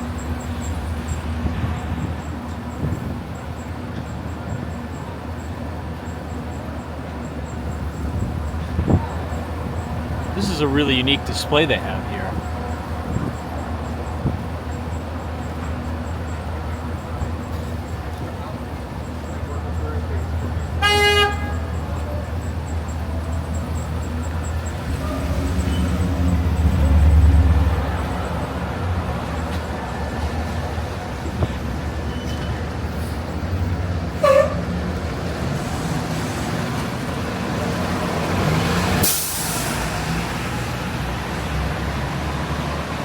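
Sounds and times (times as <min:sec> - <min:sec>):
heavy vehicle engine rumbling: 0:00.0 - 0:43.0
air brake hiss: 0:39.0 - 0:39.9.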